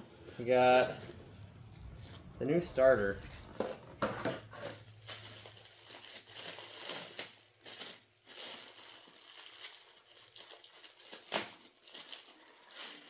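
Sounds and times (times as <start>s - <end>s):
packaging rustling and crinkling: 3.2s - 13.0s.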